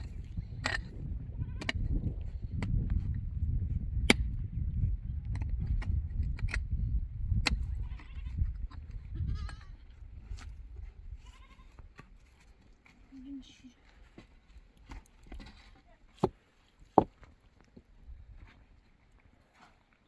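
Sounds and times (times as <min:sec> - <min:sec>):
goats and sheep bleating: 0:09.2 - 0:09.9, 0:11.2 - 0:11.8.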